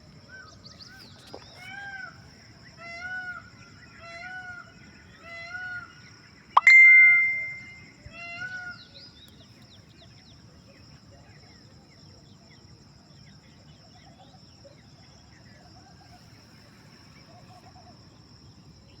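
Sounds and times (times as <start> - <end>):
high-pitched hum: 6.6 - 7.8
faint chirping: 6.6 - 8.1.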